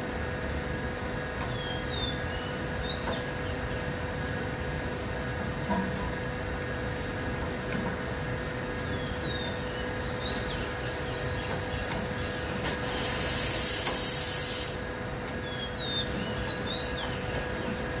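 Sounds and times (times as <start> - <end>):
steady background hum: 0.0 - 18.0
compressed air hissing: 12.6 - 14.9.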